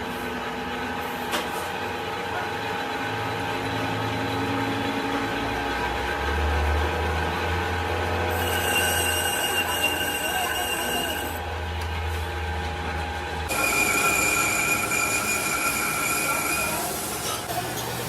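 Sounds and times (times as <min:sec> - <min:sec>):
workshop machine humming: 0:00.0 - 0:18.0
machine whining tones: 0:08.2 - 0:11.4, 0:13.5 - 0:17.5.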